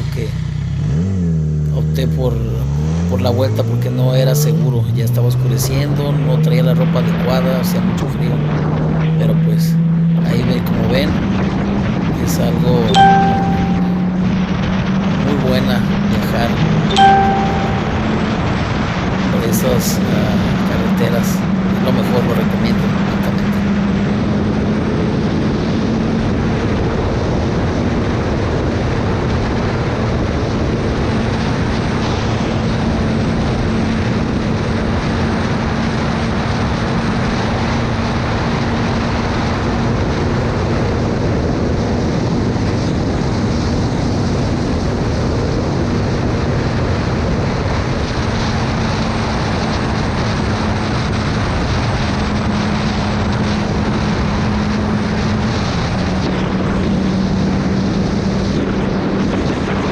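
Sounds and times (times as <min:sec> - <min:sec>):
motorcycle engine cruising: 0:00.0 - 0:47.0.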